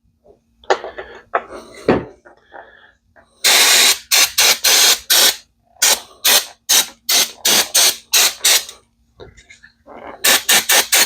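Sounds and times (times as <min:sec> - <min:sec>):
aerosol can spraying: 0:03.5 - 0:08.7, 0:10.2 - 0:11.0.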